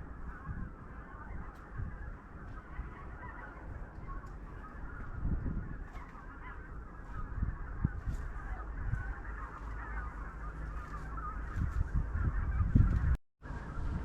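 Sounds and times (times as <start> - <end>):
chickens clucking: 0.0 - 13.2
low rumble: 6.8 - 14.0.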